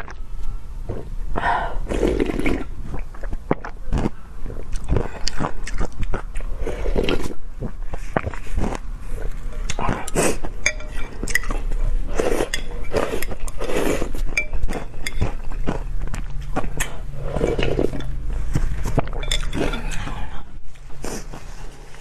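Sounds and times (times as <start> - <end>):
low hum: 0.0 - 4.7, 7.4 - 22.0
eating sounds: 0.9 - 22.0
cutlery clinking against dish: 10.6 - 11.6, 19.0 - 20.0.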